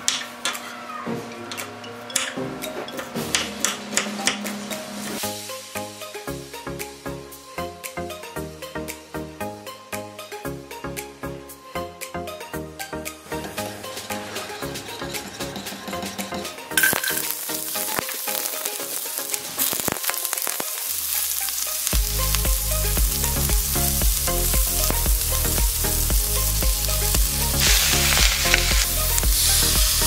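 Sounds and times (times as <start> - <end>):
sausages sizzling in oil: 4.6 - 6.3, 16.7 - 30.0
stirring clicks: 26.8 - 29.3.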